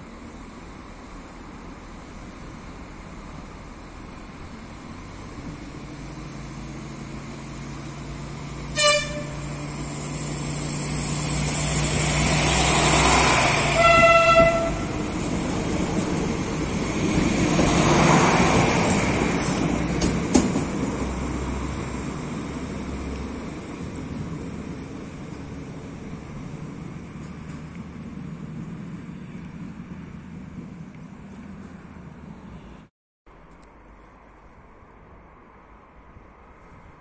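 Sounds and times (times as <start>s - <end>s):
train running and wheel noise: 0.0s - 32.6s
train horn: 8.7s - 9.7s, 13.7s - 15.0s.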